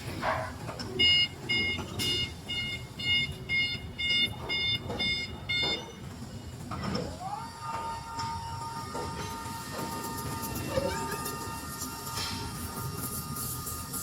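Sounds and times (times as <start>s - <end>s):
forklift warning beeper: 1.0s - 6.7s.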